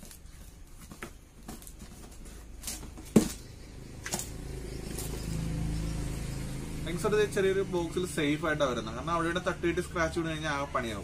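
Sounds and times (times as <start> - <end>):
low engine hum: 3.5 - 9.6.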